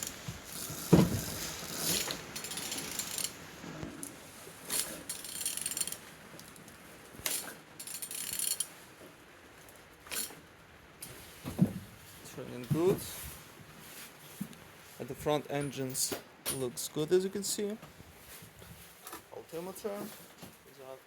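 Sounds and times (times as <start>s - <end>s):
ratchet wrench clicking: 1.9s - 3.4s, 4.7s - 6.0s, 7.3s - 8.7s.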